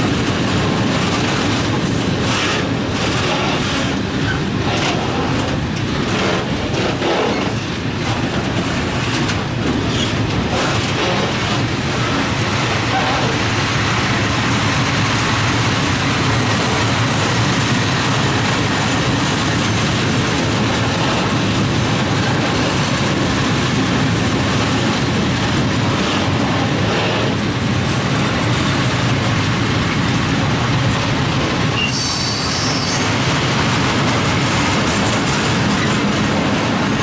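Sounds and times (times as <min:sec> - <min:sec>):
freight train wheels rumbling: 0:00.0 - 0:37.0
high wheel squeal: 0:31.8 - 0:33.0.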